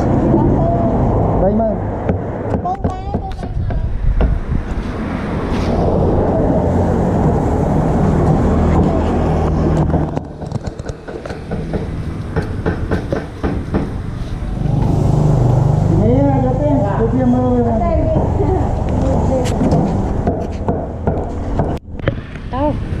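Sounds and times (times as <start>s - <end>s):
sharp clicks and knocks: 8.2s - 14.0s.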